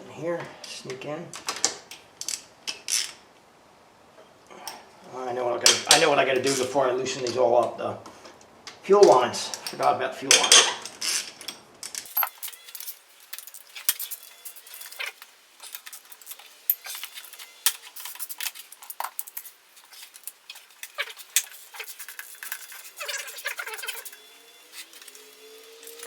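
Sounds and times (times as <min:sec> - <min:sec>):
hand tools clinking on metal: 0:12.0 - 0:26.0.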